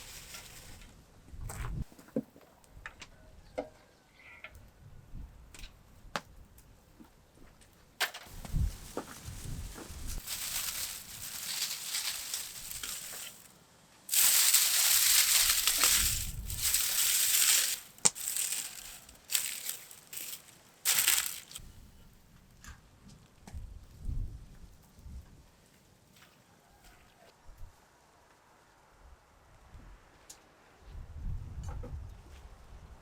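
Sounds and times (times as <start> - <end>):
crunching and rustling: 0.0 - 0.9, 8.2 - 13.5, 14.1 - 21.6.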